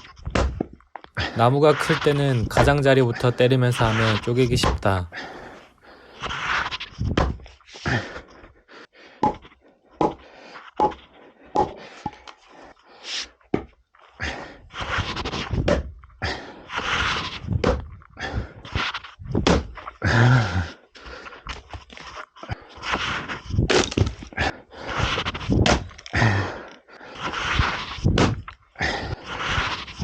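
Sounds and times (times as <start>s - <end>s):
man breathing heavily: 5.1s - 6.3s, 7.7s - 13.4s, 14.0s - 14.7s, 16.2s - 16.7s, 18.1s - 18.8s, 20.0s - 21.5s, 24.3s - 27.4s, 28.8s - 29.7s.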